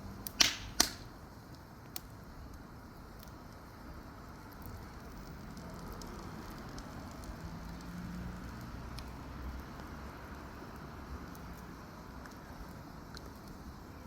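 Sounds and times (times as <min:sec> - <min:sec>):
fire crackles and pops: 0:00.0 - 0:14.0
fire rushing flame noise: 0:00.0 - 0:14.0.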